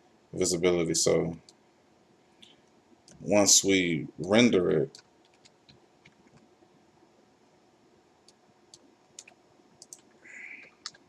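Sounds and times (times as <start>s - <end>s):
mouse and keyboard clicks: 8.3s - 11.0s.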